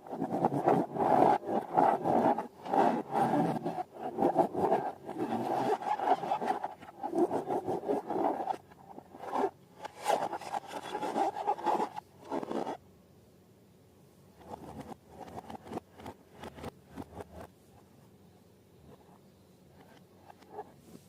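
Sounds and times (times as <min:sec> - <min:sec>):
balloons and slime rubbing: 0:00.0 - 0:12.8.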